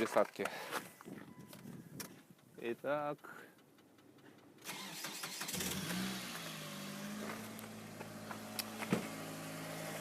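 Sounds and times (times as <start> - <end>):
car engine starting and idling: 3.6 - 10.0.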